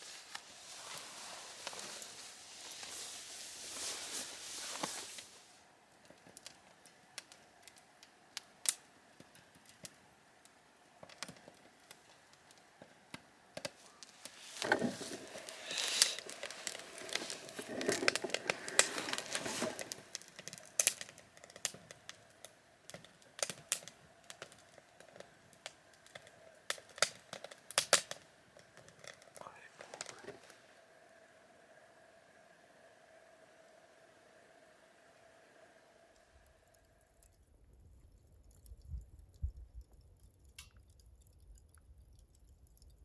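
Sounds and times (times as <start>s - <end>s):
rustling noise: 0.0s - 5.6s, 13.8s - 20.2s
wood fire crackling: 0.0s - 43.0s.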